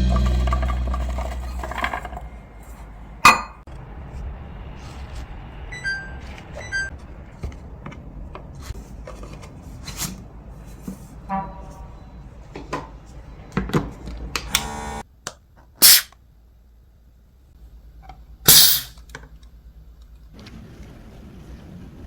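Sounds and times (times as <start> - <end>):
background music: 0.0 - 2.2.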